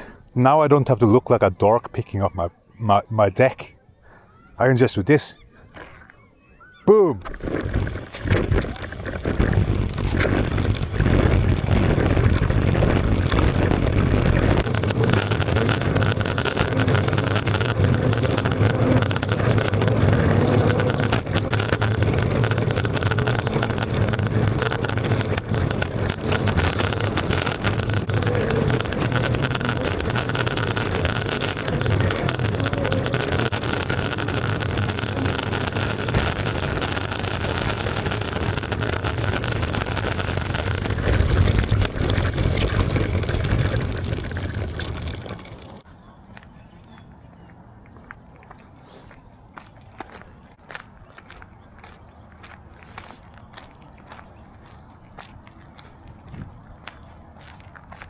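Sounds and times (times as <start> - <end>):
longboard wheels rolling on pavement: 7.2 - 45.9.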